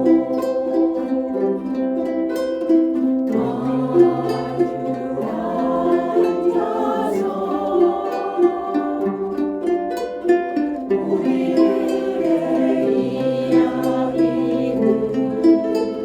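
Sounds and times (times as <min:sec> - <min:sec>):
ukulele ensemble playing: 0:00.0 - 0:16.0.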